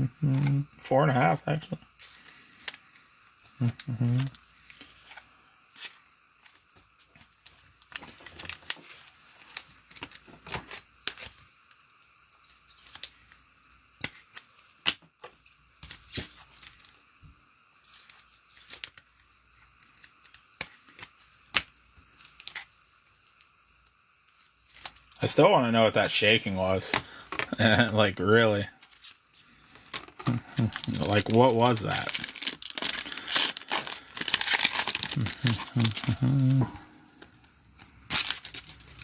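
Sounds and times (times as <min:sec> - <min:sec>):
card packs tearing: 0:07.9 - 0:11.8, 0:29.9 - 0:39.0.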